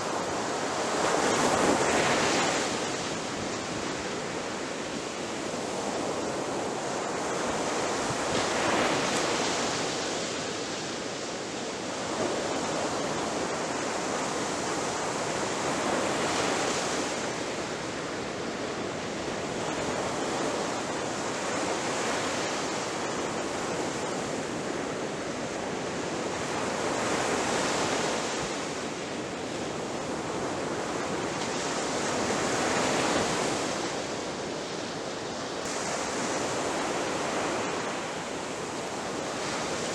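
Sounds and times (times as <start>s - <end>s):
ocean waves breaking: 26.3s - 39.9s.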